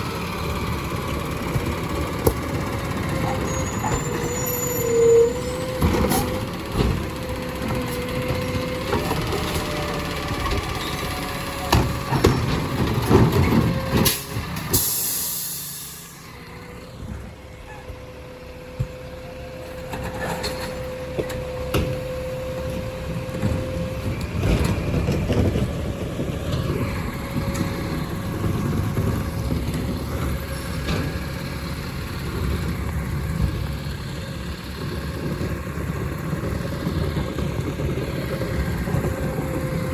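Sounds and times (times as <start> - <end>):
garbage truck engine whine: 0.0 - 39.9
air brake hiss: 14.0 - 16.3.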